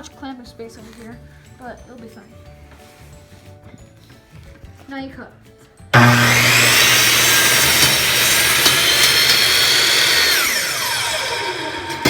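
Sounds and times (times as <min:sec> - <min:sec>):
miter saw cutting wood: 0:06.0 - 0:12.0.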